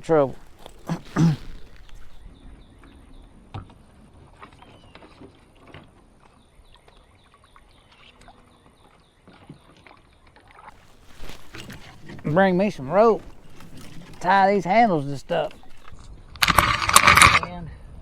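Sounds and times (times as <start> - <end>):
person shifting in kayak: 0.0 - 2.2, 10.7 - 17.4.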